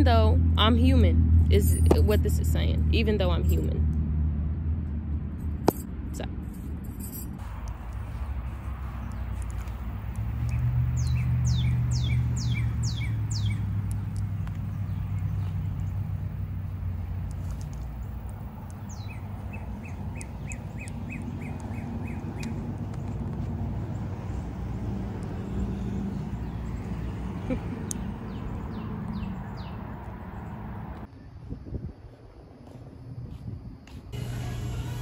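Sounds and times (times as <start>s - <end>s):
steady low rumble: 0.0s - 25.4s
small birds chirping: 7.8s - 30.9s.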